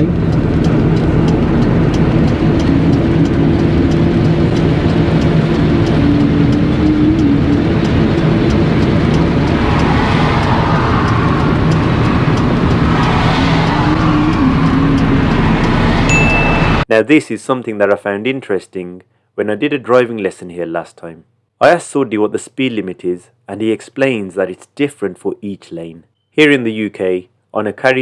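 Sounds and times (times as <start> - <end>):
car engine drone: 0.0 - 16.9
road noise inside car: 0.0 - 16.9
rushing noise: 0.2 - 16.8.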